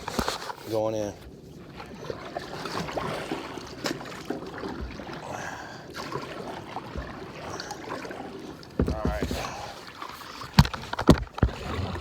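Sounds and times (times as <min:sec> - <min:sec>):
sharp knocks: 0:08.8 - 0:09.5.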